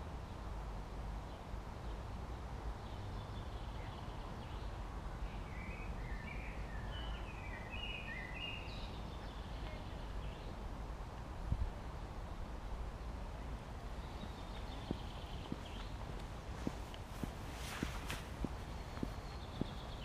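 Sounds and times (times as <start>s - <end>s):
songbird chirping and warbling: 2.8s - 10.6s, 13.4s - 20.0s.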